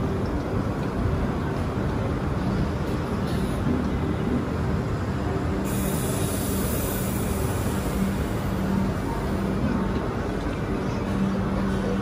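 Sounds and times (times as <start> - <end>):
train coaches rumbling: 0.0 - 12.0
train hiss: 5.5 - 9.6.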